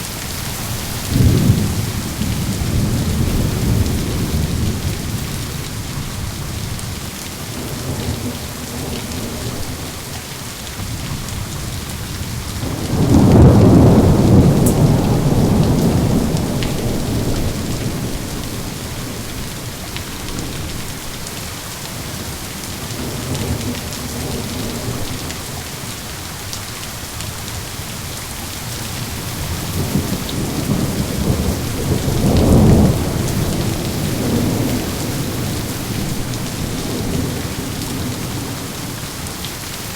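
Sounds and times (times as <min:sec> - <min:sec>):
steady rain falling: 0:00.0 - 0:39.9
rolling thunder: 0:01.0 - 0:06.8, 0:10.8 - 0:21.1, 0:29.0 - 0:39.0.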